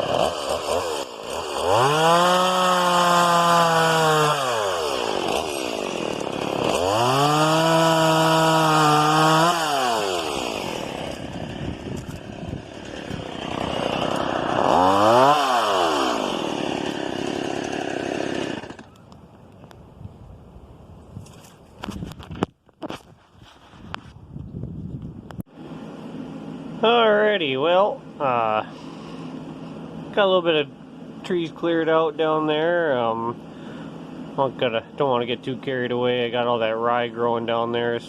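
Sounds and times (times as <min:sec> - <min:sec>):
chainsaw engine revving: 0:00.0 - 0:19.0.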